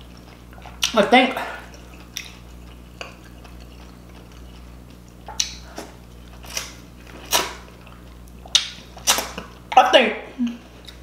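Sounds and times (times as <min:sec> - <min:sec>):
wet chewing: 0:00.0 - 0:09.8
lip smacks: 0:01.6 - 0:09.6.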